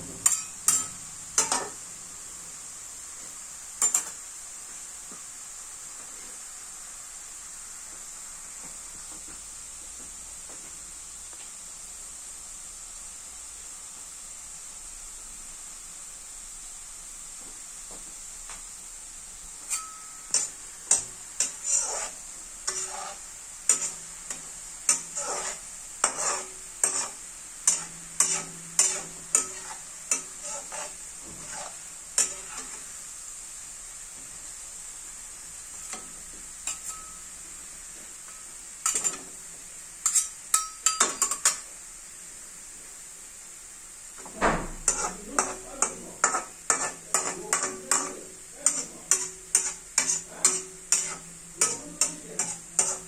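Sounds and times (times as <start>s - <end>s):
potato sizzling in oil: 0.0s - 53.0s
metal spoon scraping pan: 0.2s - 1.8s, 19.6s - 32.9s, 36.6s - 37.2s, 38.8s - 39.3s, 40.0s - 41.6s, 44.8s - 53.0s.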